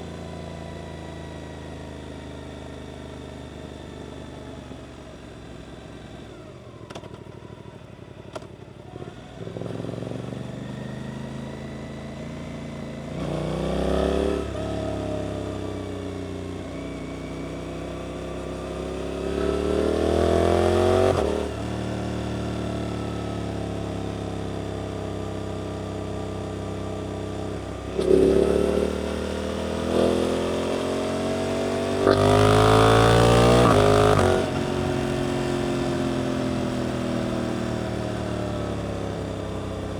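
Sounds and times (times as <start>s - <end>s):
motorcycle engine revving: 9.0s - 39.9s.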